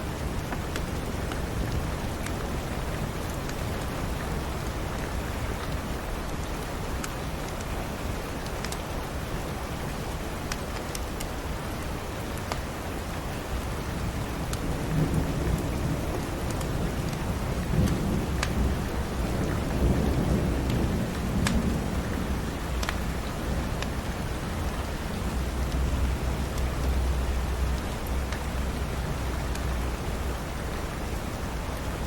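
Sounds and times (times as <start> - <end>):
steady rain: 0.0 - 32.0
wood fire crackling: 10.1 - 12.8, 13.4 - 30.0
thunder rumble: 14.7 - 29.8.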